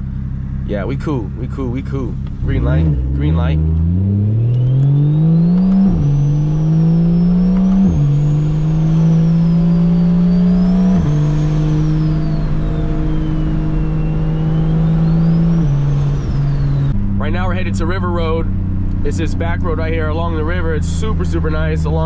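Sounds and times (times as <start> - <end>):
car engine accelerating and upshifting: 0.0 - 22.0
faint high turbo whistle: 4.3 - 17.3.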